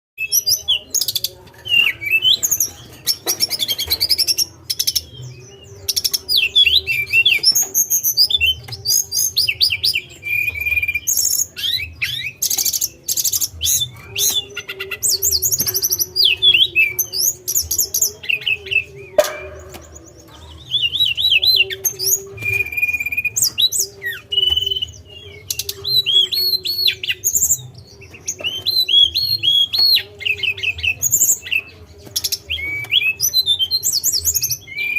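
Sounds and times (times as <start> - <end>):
songbird singing: 0.2 - 34.9.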